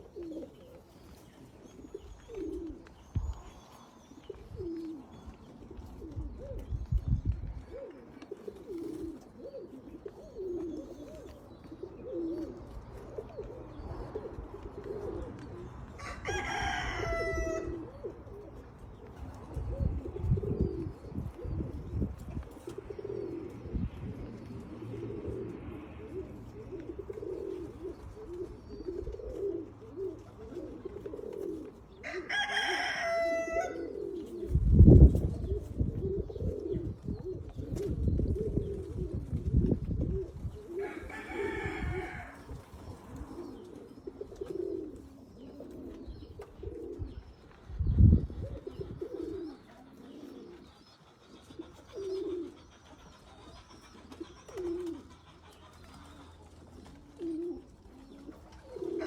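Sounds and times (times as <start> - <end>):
pigeons cooing: 0.0 - 59.0
rooster crowing: 16.0 - 17.8, 32.0 - 33.9, 40.8 - 42.5.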